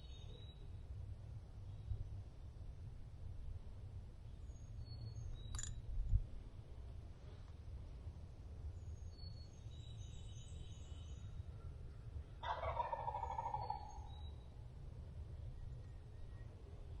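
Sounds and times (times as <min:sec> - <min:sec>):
turkey gobbling: 0:12.4 - 0:14.0.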